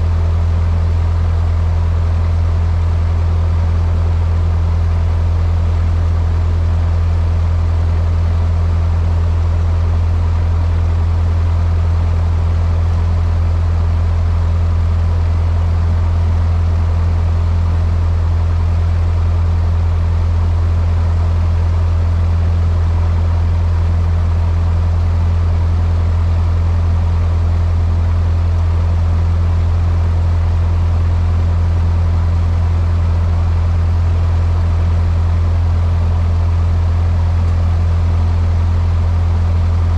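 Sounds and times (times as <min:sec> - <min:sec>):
airplane engine and propeller droning: 0:00.0 - 0:39.9.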